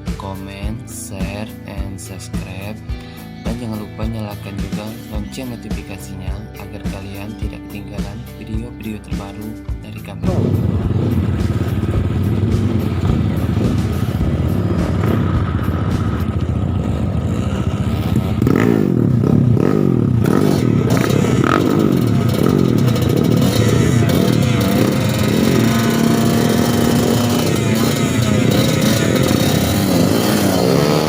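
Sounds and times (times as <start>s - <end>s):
motorcycle engine revving: 9.5s - 31.0s.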